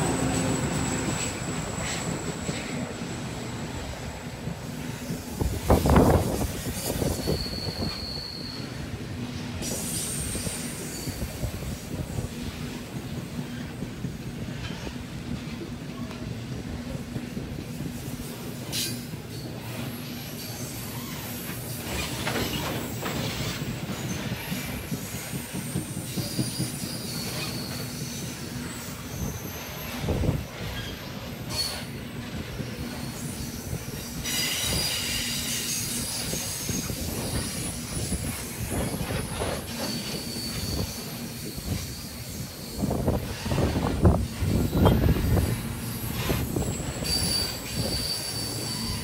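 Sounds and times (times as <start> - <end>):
high-pitched wheel squeal: 6.7 - 8.8, 20.1 - 32.0, 32.9 - 49.0
train wheels clacking over rail joints: 9.6 - 32.0.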